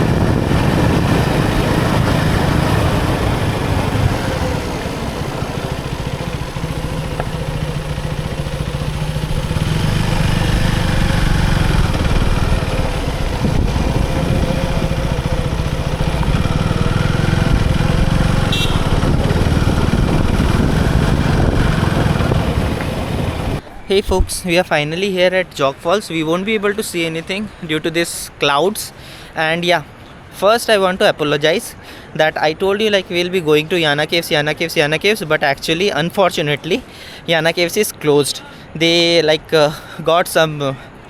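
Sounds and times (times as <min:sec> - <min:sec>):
motorcycle engine revving: 0:00.0 - 0:23.6.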